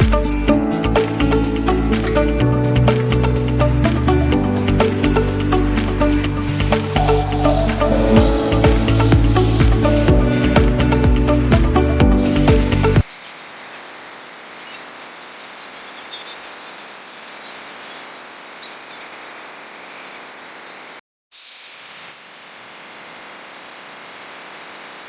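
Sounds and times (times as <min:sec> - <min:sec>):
electronic music: 0:00.0 - 0:13.0
faint bird chirps: 0:13.0 - 0:21.0.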